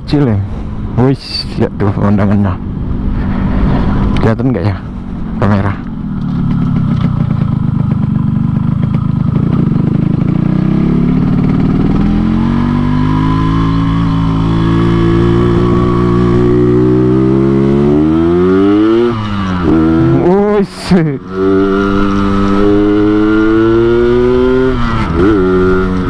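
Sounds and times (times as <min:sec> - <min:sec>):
two-stroke motorcycle accelerating: 0:01.2 - 0:26.0.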